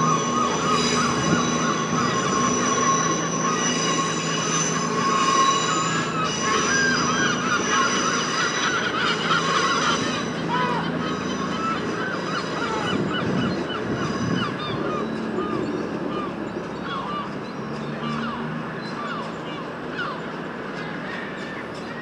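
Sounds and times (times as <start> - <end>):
steady high tones: 0.0 - 14.4
diesel train engines running: 0.0 - 22.0
high wavering wheel squeal: 0.0 - 22.0.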